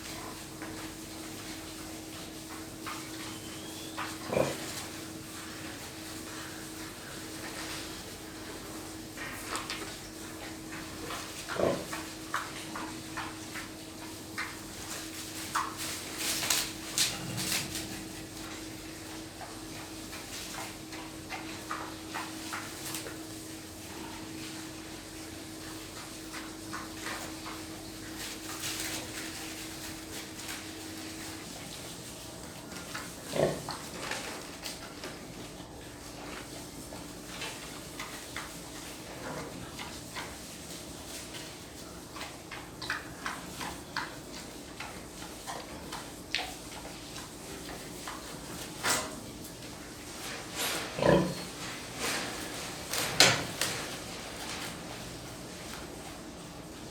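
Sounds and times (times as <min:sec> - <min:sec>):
pigs calling: 0:03.0 - 0:05.2, 0:11.0 - 0:12.8, 0:32.6 - 0:34.0, 0:50.9 - 0:51.6.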